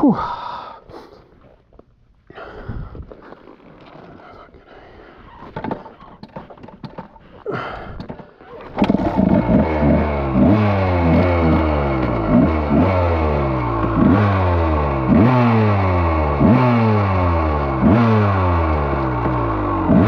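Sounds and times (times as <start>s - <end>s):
scrapes and clicks: 3.0s - 9.4s
dirt bike engine revving: 8.7s - 20.0s.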